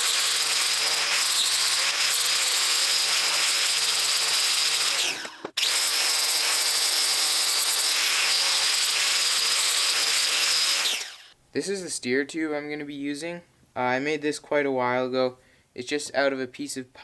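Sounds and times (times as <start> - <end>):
power tool whining: 0.0 - 11.4.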